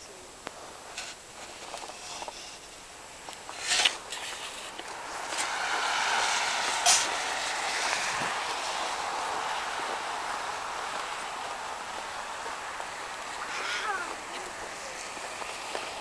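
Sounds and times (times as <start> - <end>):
outdoor rushing noise: 3.4 - 16.0.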